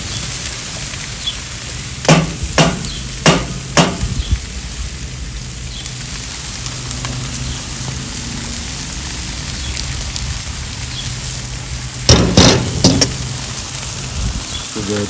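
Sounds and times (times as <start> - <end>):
food sizzling: 0.0 - 15.0
cooking utensil knocks: 12.1 - 13.2.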